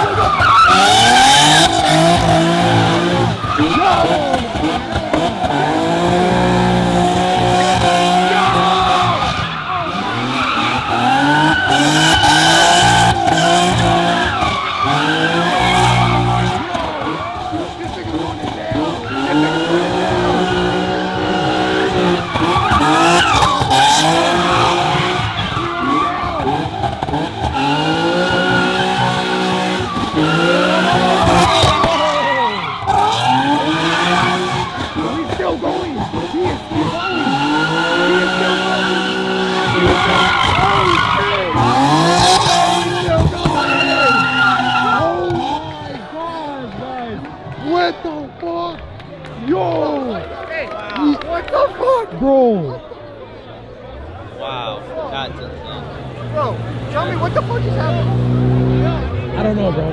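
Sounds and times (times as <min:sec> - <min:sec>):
tyres squealing: 0:00.0 - 0:45.7
car engines at high revs: 0:00.0 - 0:52.0, 0:53.4 - 0:59.9.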